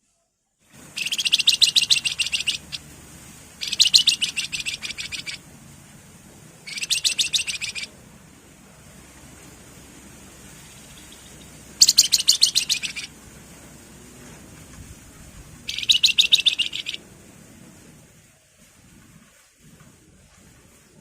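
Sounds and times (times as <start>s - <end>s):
songbird high trills: 1.0s - 2.9s, 3.6s - 5.4s, 6.7s - 7.9s, 10.6s - 13.1s, 15.7s - 17.0s.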